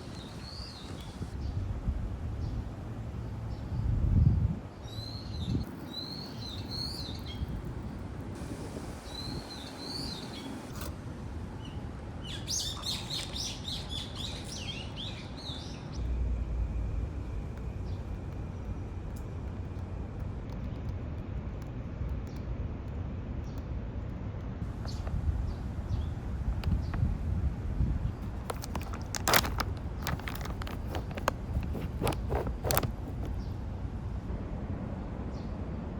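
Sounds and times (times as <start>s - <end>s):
small birds chirping: 0.0s - 1.6s, 2.4s - 8.0s, 9.0s - 10.7s, 24.7s - 33.9s
outdoor background noise: 0.0s - 35.9s.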